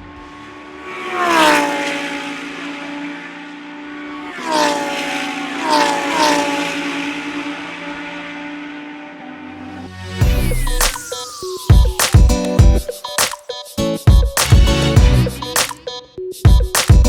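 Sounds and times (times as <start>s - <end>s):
race cars passing at speed: 0.0s - 10.7s.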